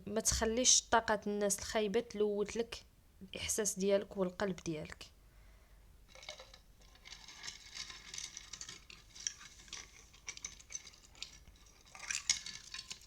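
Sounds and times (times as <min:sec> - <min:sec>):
small objects rustling and clicking: 0:06.1 - 0:13.0.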